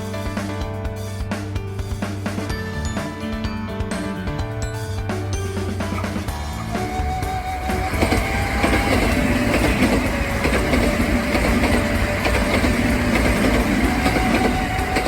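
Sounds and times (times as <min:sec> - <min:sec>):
electric train passing: 0:05.6 - 0:15.0.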